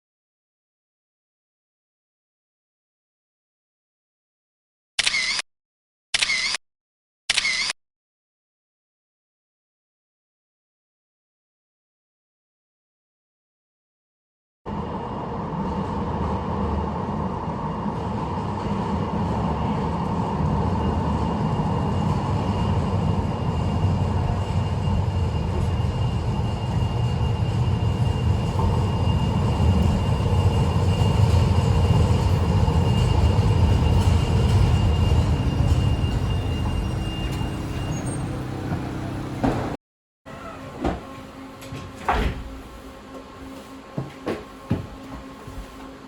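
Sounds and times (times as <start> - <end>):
tram rumbling on rails: 14.7 - 46.0.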